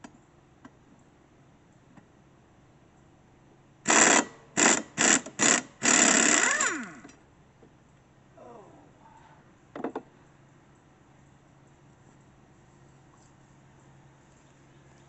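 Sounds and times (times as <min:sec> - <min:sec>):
pneumatic impact wrench bursts: 0:03.8 - 0:07.2.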